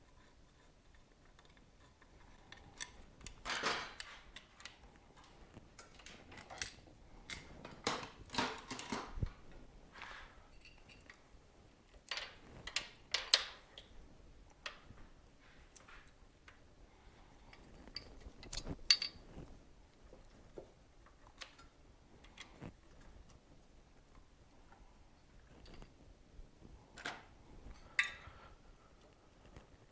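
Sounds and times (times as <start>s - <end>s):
tools and metal parts clinking: 1.4s - 9.4s, 10.5s - 11.2s, 12.0s - 13.9s, 17.5s - 19.3s.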